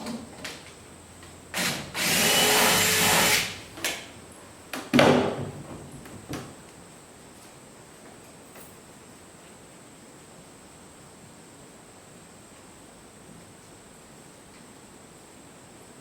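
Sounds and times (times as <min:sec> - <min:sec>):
power drill running: 0:01.5 - 0:03.7.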